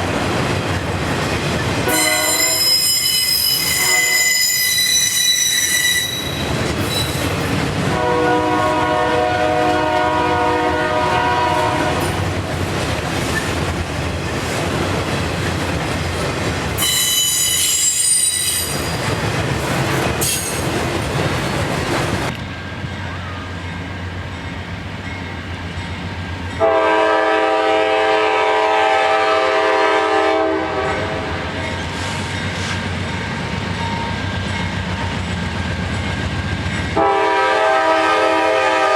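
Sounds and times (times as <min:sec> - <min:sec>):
train wheel and rail noise: 0:00.0 - 0:38.9
locomotive air horn: 0:01.9 - 0:06.4, 0:07.9 - 0:12.2, 0:16.8 - 0:18.7, 0:26.6 - 0:31.3, 0:37.0 - 0:38.9
wheel squeal: 0:01.9 - 0:07.4, 0:16.8 - 0:19.1.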